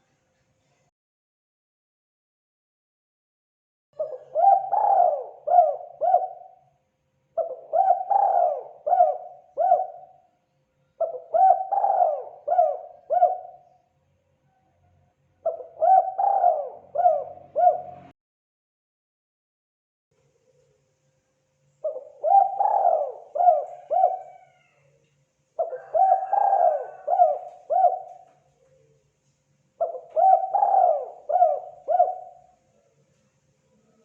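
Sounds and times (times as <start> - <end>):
dove cooing: 4.0 - 6.6, 7.4 - 10.2, 11.0 - 13.8, 15.4 - 18.1, 21.8 - 25.0, 25.6 - 29.0, 29.8 - 32.6.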